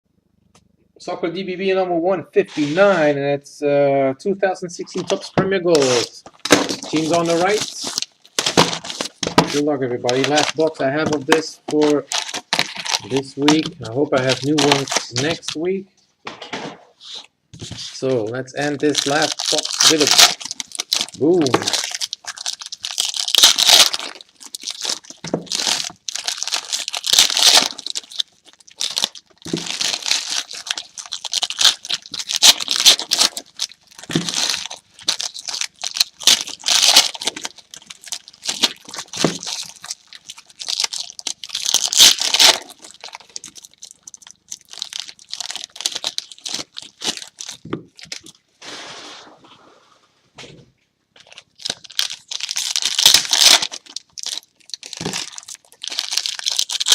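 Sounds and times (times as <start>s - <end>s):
wrapping tearing and crinkling: 4.9s - 15.7s, 17.6s - 48.4s, 51.2s - 56.9s.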